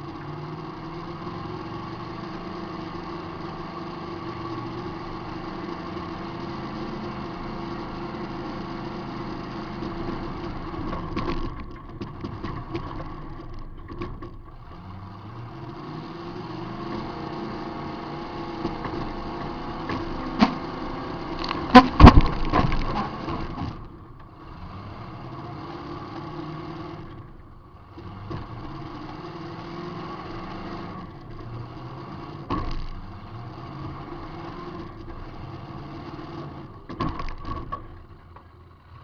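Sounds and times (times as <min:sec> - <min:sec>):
car engine running: 0:00.0 - 0:39.0
knocks: 0:21.4 - 0:23.2.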